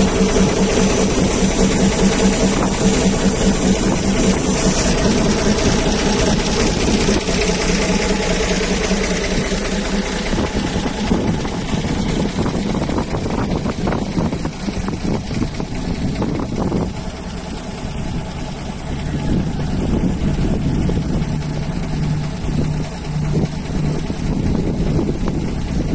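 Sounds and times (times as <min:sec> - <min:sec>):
diesel truck engine running: 0:00.0 - 0:25.9.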